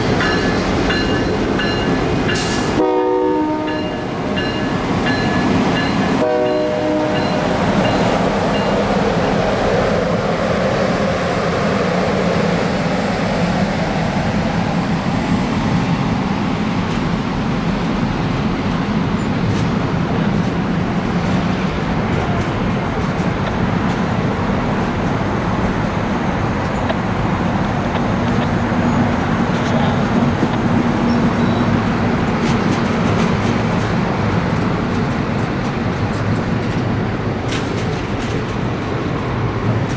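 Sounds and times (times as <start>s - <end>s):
train rumbling past: 0.0s - 39.9s
train horn chord: 2.7s - 4.4s, 6.2s - 7.4s.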